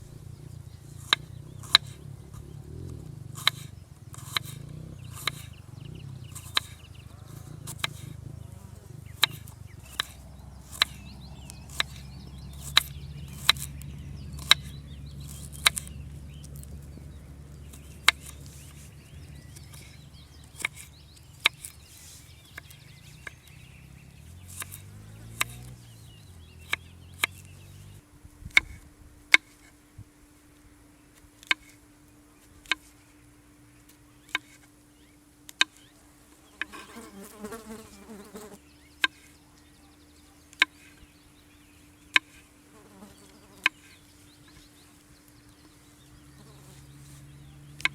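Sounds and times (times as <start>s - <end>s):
knife chopping: 3.4s - 5.5s, 6.3s - 8.2s, 9.1s - 13.8s.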